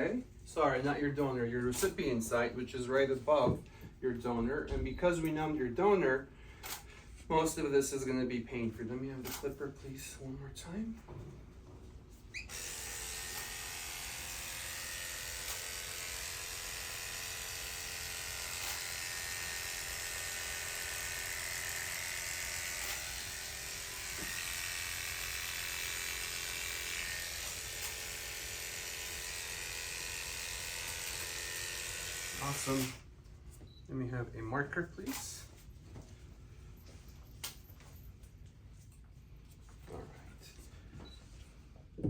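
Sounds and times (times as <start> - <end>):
electric hair clippers buzzing: 12.5 - 33.0.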